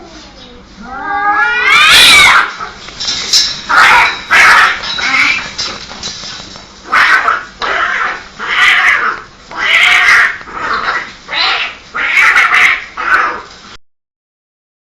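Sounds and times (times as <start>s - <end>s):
cats screeching yowls: 0.8s - 2.8s, 3.7s - 5.5s, 6.8s - 13.5s.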